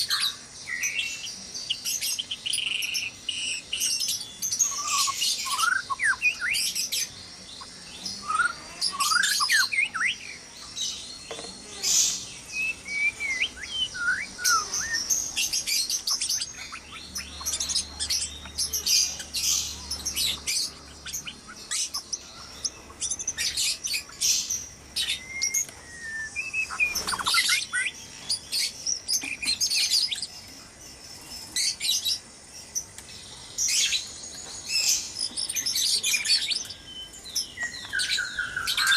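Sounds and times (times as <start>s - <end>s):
birds chirping: 0.0s - 38.9s
bird whistling: 4.6s - 6.6s, 12.5s - 15.2s, 25.0s - 28.0s.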